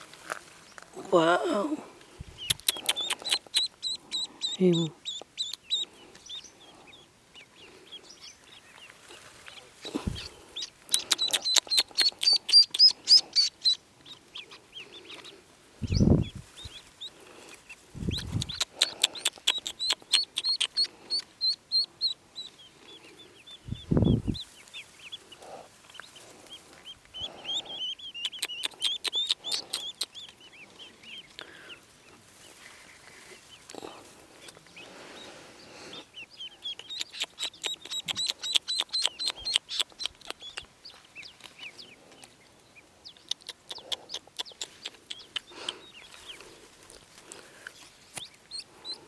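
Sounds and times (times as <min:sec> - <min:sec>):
ducklings peeping: 0:00.0 - 0:49.0
dull low thumps: 0:10.0 - 0:10.4, 0:15.8 - 0:16.5, 0:17.9 - 0:18.6, 0:23.6 - 0:24.4.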